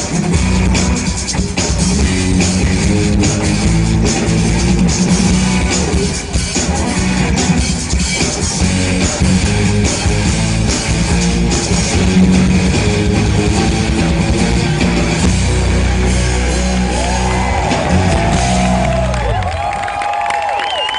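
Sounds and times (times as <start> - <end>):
live pop-rock band playing: 0.0 - 19.8
audience whistling: 16.9 - 20.9.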